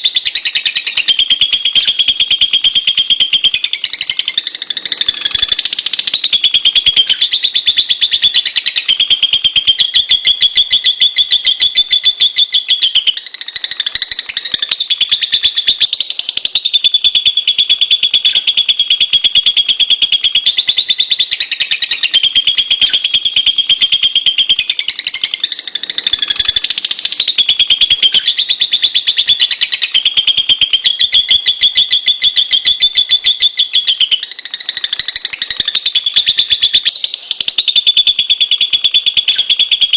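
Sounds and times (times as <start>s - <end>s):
bird chattering high chirps: 0.0s - 39.9s.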